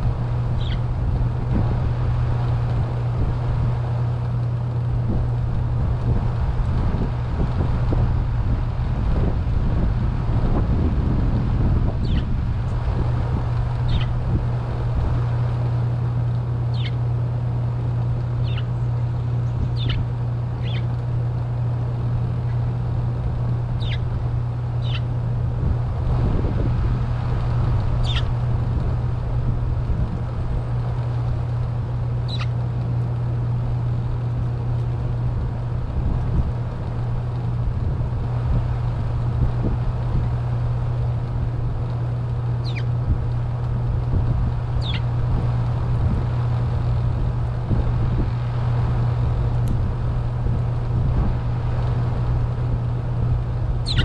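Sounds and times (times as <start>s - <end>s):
steady low hum: 0.0s - 54.0s
bird chirps: 0.6s - 0.8s, 12.0s - 12.3s, 13.9s - 14.1s, 16.7s - 17.0s, 18.4s - 18.8s, 19.5s - 20.0s, 20.6s - 20.9s, 23.8s - 24.0s, 24.8s - 25.0s, 28.0s - 28.3s, 32.3s - 32.5s, 42.6s - 42.9s, 44.8s - 45.0s.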